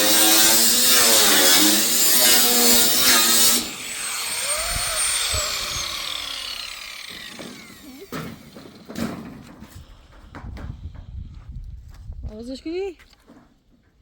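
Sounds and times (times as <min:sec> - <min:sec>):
power tool whine winding down: 0:01.0 - 0:08.9.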